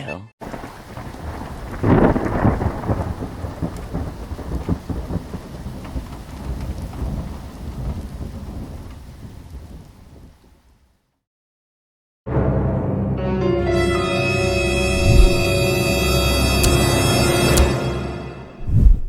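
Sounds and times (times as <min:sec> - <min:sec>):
thunder rumbling: 0:00.4 - 0:10.3, 0:14.9 - 0:15.6, 0:18.6 - 0:19.0
steady rain: 0:00.4 - 0:10.9.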